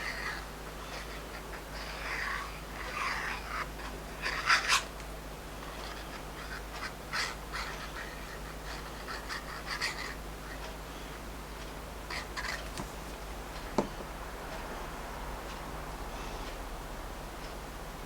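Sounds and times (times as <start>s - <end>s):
paper rustling: 12.5s - 13.9s.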